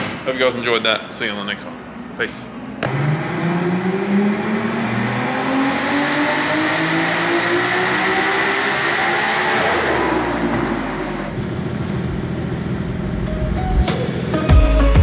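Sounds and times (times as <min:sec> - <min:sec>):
car engine revving on a dyno: 0:02.8 - 0:13.2.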